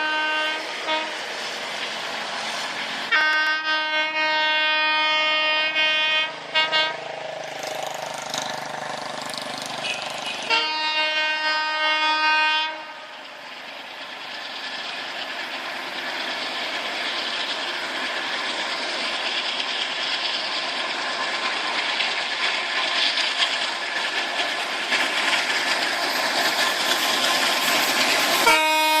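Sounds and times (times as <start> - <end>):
locomotive horn: 0.0 - 1.2, 3.1 - 7.1, 9.8 - 13.2, 28.4 - 29.0
train rushing past: 0.0 - 29.0
wheel clatter on rails: 7.1 - 10.5, 13.3 - 29.0.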